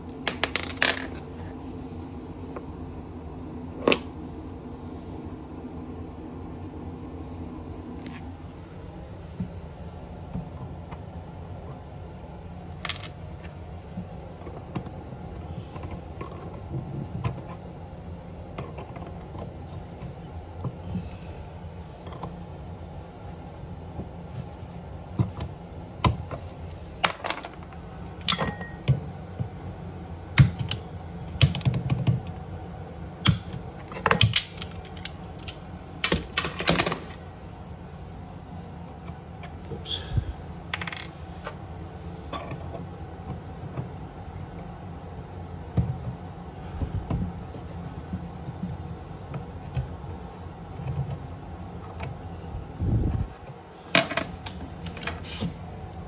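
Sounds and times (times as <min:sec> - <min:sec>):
low steady hum: 0:00.0 - 0:56.0
metal tools clinking: 0:00.1 - 0:01.3.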